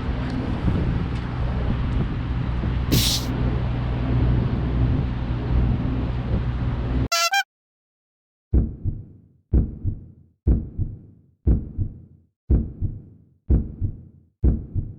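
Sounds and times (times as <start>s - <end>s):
vehicle engine drone: 0.0s - 7.1s
short hiss: 2.9s - 3.3s.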